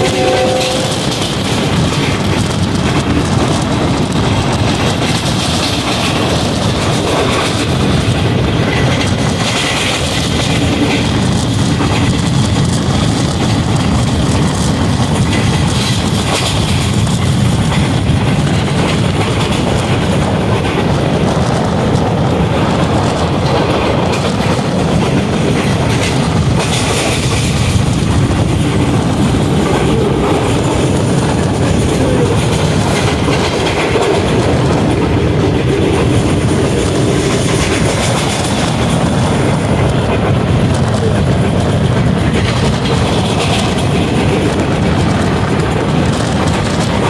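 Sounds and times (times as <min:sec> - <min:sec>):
wheel clacks over rails: 0:00.0 - 0:47.0
wheels rumbling on track: 0:00.0 - 0:47.0.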